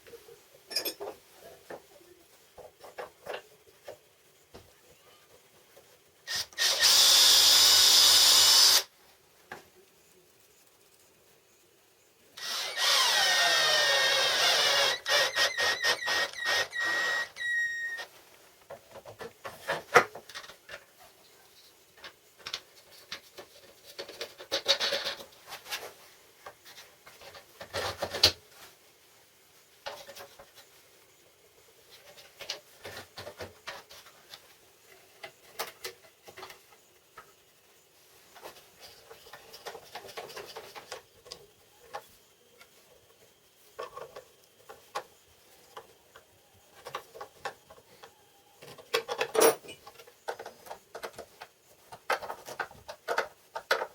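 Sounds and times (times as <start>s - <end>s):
power tool whining: 6.3s - 8.9s, 12.4s - 18.1s
parts clicking and knocking: 22.0s - 28.4s, 43.8s - 53.9s.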